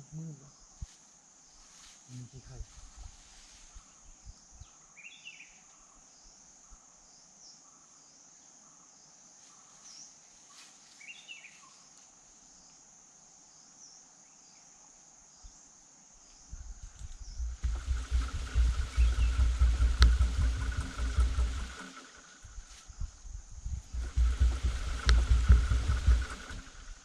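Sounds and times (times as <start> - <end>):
insects chirring: 0.0 - 27.0
bird chirps: 3.7 - 10.2, 11.0 - 11.9, 16.3 - 26.9
low rumbling noise: 16.6 - 27.0.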